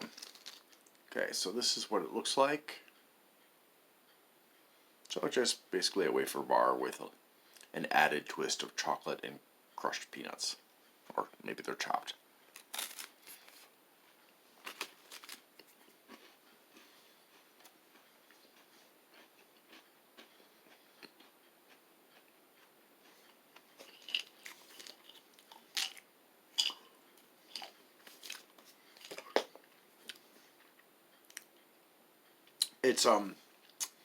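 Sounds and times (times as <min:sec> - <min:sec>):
crunching a crispy wafer bar: 0:00.0 - 0:00.8, 0:12.5 - 0:13.7, 0:14.6 - 0:16.9, 0:23.8 - 0:26.0.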